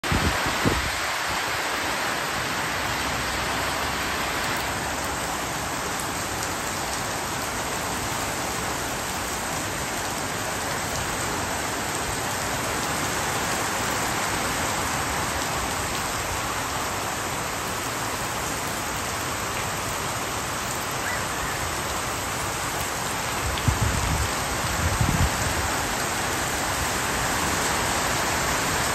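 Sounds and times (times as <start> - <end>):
heavy rain falling: 0.0 - 28.9.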